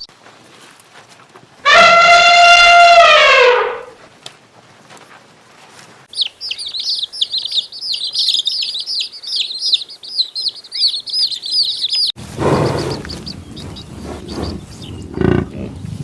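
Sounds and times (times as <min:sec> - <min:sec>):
small birds chirping: 0:06.0 - 0:16.0.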